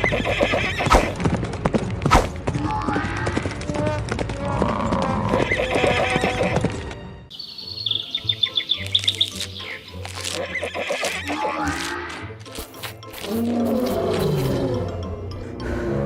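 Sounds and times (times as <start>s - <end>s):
cartoon galloping hoofbeats: 0.0s - 7.0s
background music: 0.0s - 16.0s
horse whinnying: 4.6s - 6.7s.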